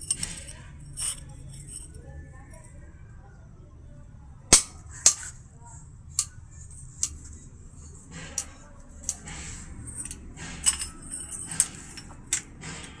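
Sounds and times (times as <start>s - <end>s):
metal clinking and knocking: 0.0s - 2.0s, 4.5s - 5.4s, 6.1s - 13.0s.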